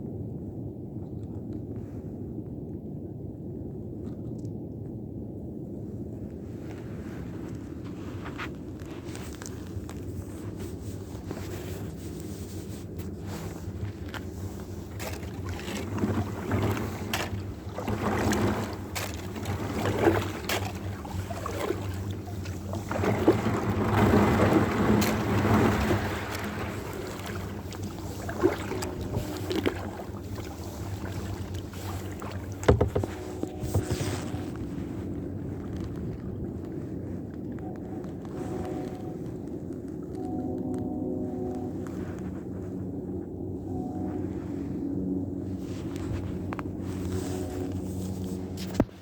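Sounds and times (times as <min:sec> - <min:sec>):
wind on microphone: 0:00.0 - 0:49.0
water sloshing around kayak: 0:06.7 - 0:49.0.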